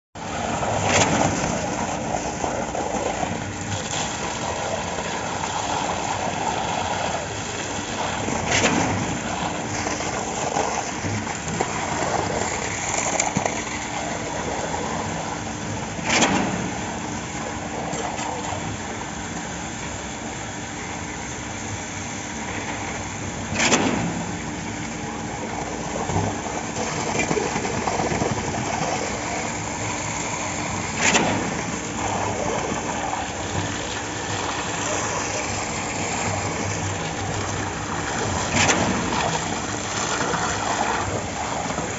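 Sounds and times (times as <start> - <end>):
sharp loud clunk: 23.6 - 24.3.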